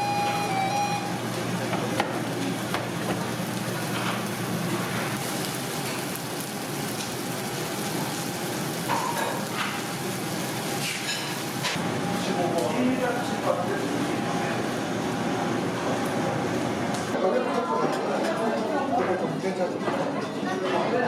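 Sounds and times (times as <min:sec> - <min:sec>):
meat sizzling over fire: 0:00.7 - 0:17.2
fire crackles: 0:01.1 - 0:17.2.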